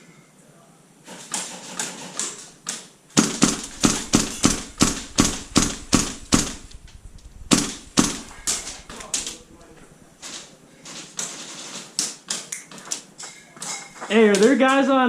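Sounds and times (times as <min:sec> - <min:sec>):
airsoft gun shots: 0:03.2 - 0:10.1.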